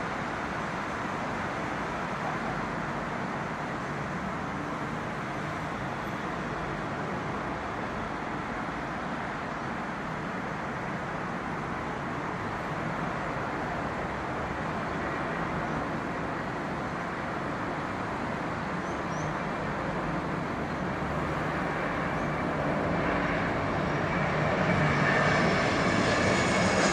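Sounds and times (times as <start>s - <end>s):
jet engine rush: 19.4s - 26.9s.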